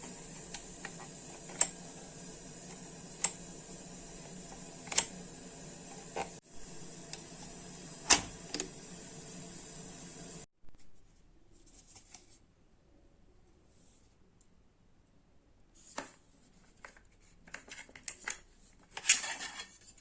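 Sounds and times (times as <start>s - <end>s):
socket switch clicks: 0.0s - 6.3s, 7.1s - 8.9s
steady hiss: 0.0s - 10.5s.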